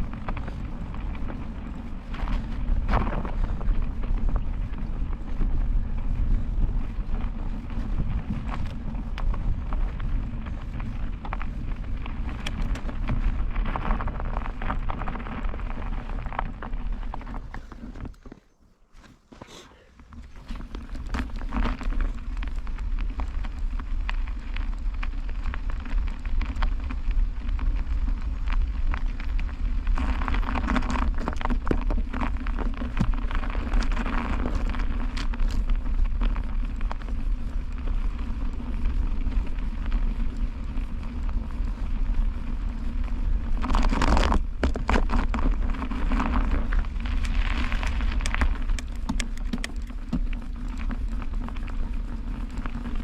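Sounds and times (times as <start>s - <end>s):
wind rumbling on microphone: 0.0s - 19.3s, 20.0s - 53.0s
tyres crackling on slushy road: 19.5s - 53.0s.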